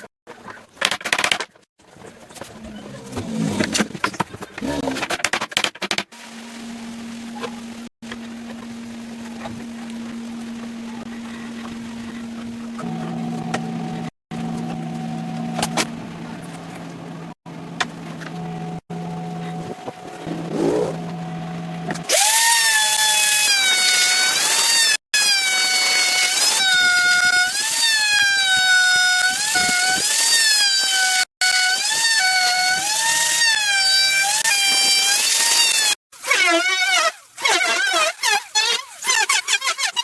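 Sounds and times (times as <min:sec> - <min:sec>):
machine hum: 0:06.2 - 0:22.4
power tool whining: 0:20.9 - 0:33.3.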